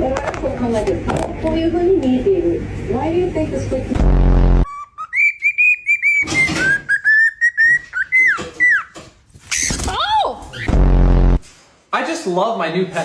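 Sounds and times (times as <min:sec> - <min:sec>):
loud buzz: 0:03.9 - 0:04.7, 0:10.7 - 0:11.4
parrot whistling: 0:04.6 - 0:09.7.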